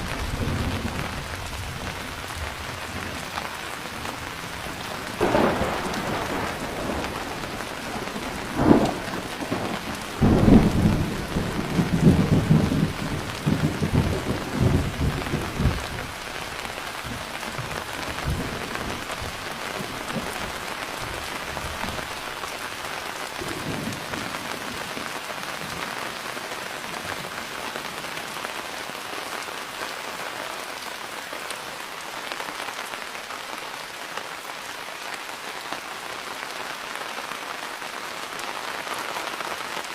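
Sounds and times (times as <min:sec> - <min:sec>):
thunder clap and rumble: 0:00.0 - 0:03.3, 0:04.1 - 0:22.1, 0:23.4 - 0:25.0
steady rain: 0:00.0 - 0:39.9.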